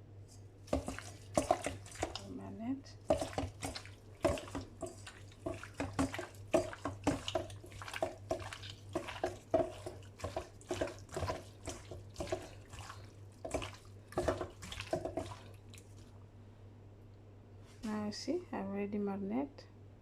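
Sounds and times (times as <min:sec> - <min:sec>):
wet squelching of raw meat: 0:00.7 - 0:02.3, 0:03.0 - 0:16.2.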